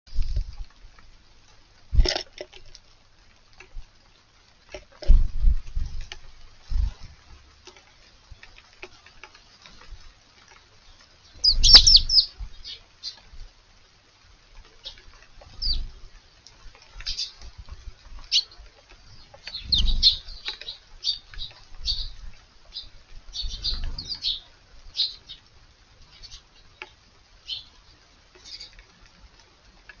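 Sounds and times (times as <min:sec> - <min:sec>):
sparrows chirping: 0:10.8 - 0:13.2, 0:14.8 - 0:15.9, 0:17.0 - 0:17.4, 0:18.2 - 0:28.8
low rumbles: 0:11.3 - 0:12.8, 0:17.4 - 0:20.5.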